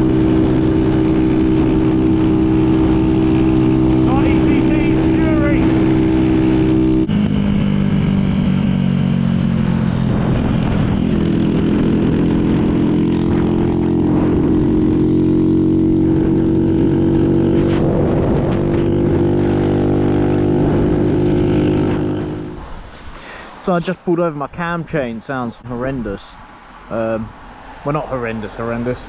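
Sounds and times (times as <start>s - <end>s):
motorcycle engine running hard: 0.0s - 22.6s
wind noise: 0.0s - 23.2s.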